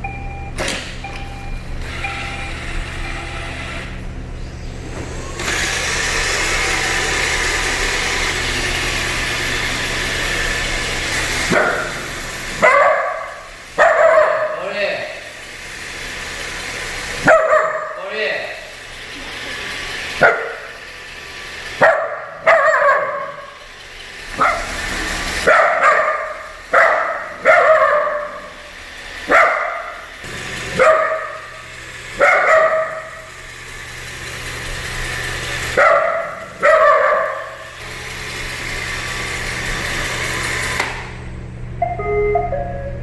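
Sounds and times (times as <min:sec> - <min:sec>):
robot vacuum humming: 0:00.0 - 0:43.0
puppy barking: 0:11.5 - 0:15.2, 0:17.2 - 0:18.1, 0:20.2 - 0:20.8, 0:21.8 - 0:23.6, 0:24.3 - 0:24.8, 0:25.4 - 0:30.1, 0:30.7 - 0:31.6, 0:32.2 - 0:33.2, 0:35.7 - 0:37.6.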